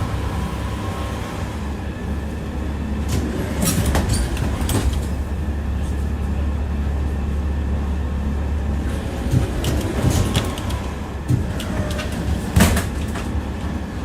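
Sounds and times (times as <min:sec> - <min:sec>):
tram rumbling on rails: 0:00.0 - 0:14.0
wheels clacking: 0:08.8 - 0:14.0.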